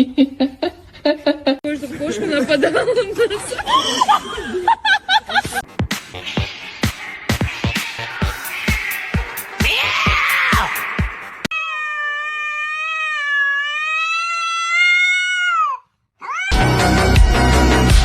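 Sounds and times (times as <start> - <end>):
music with a beat: 5.5 - 11.5
cat meowing: 8.2 - 16.7.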